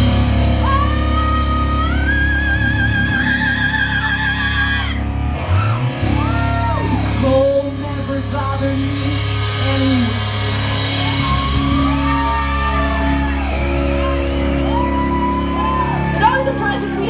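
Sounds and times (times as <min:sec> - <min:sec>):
live metal band playing: 0:00.0 - 0:04.0, 0:05.4 - 0:17.0.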